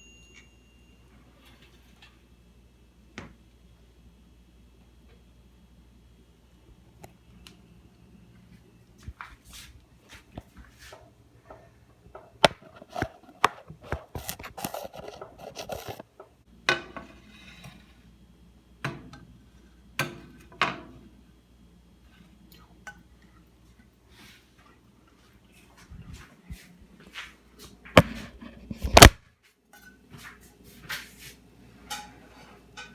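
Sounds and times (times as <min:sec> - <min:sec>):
dishes and utensils clattering: 0:31.8 - 0:32.9.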